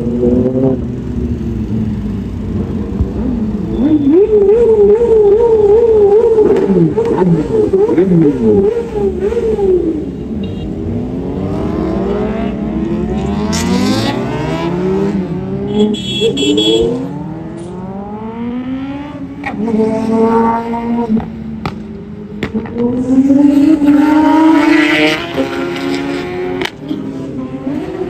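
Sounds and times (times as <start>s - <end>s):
superbike engine accelerating: 10.8s - 15.8s.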